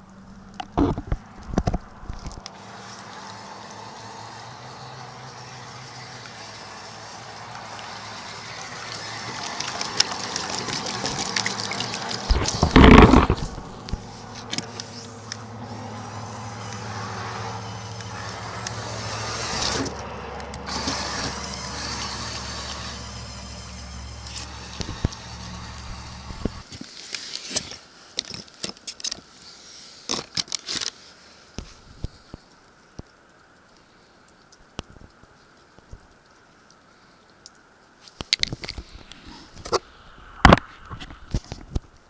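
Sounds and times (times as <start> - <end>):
water churning and splashing: 0.1 - 24.1
steady low hum: 12.3 - 26.6.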